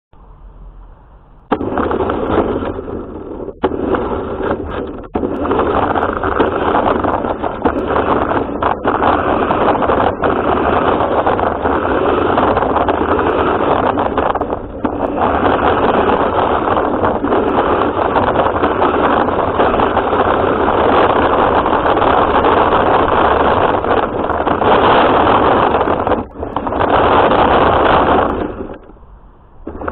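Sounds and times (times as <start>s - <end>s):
rc car running and rattling: 1.6s - 28.9s.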